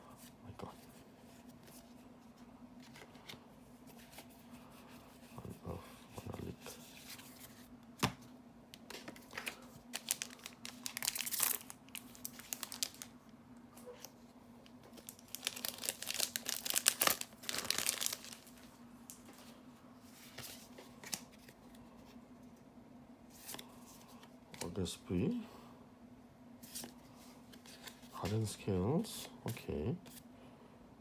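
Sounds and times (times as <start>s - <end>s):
faint steady hum: 0.0s - 31.0s
foil wrapper tearing and crinkling: 10.0s - 13.1s, 15.0s - 18.5s.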